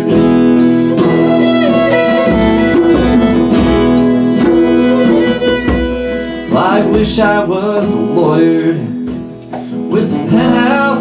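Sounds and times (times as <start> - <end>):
acoustic guitar strumming: 0.0 - 11.0
violin melody with sliding notes: 0.9 - 7.0.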